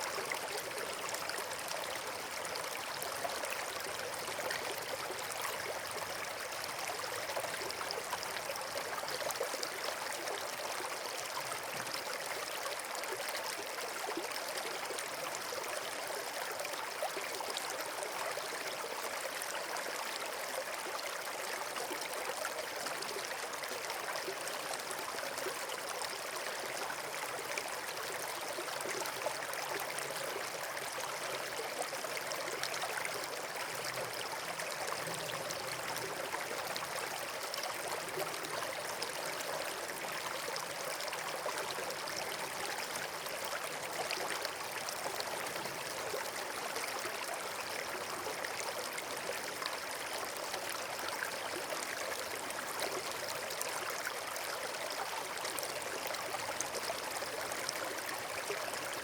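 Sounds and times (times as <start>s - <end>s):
flowing water rushing: 22.5s - 59.0s.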